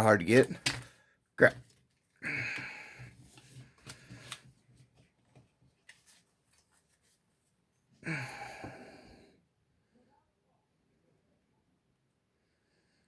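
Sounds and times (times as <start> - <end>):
cards clicking and rustling: 0.3 - 6.7.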